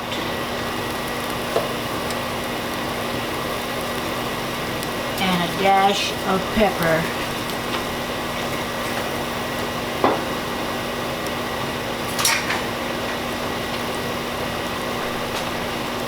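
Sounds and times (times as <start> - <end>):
kitchen fan: 0.0 - 16.0.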